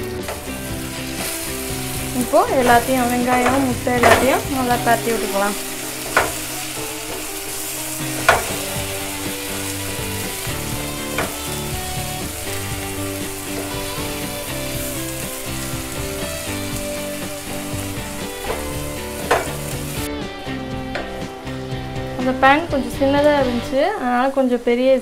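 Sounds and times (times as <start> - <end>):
egg and onion sizzling in pan: 0.0 - 25.0
wooden spatula stirring: 0.2 - 20.1
spatula knocking against pan: 3.3 - 4.6, 6.0 - 7.3, 8.0 - 8.9, 18.3 - 19.7.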